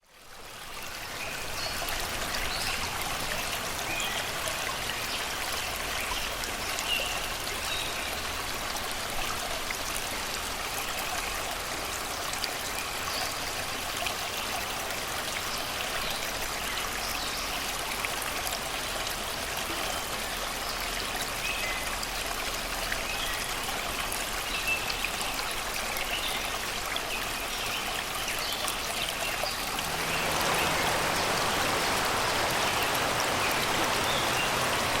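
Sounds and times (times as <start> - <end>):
river water rushing over rocks: 26.4 - 35.0.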